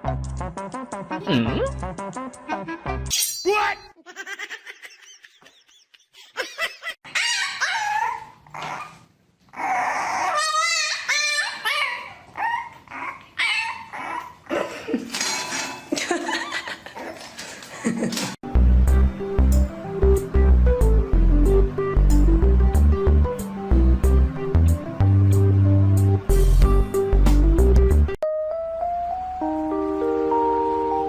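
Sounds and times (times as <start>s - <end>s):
dog yipping and barking: 7.0s - 9.0s, 9.6s - 14.4s.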